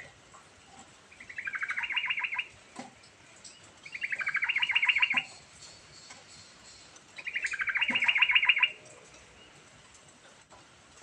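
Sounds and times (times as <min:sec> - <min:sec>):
bird singing trilled phrases: 0:01.1 - 0:02.6, 0:03.5 - 0:08.8.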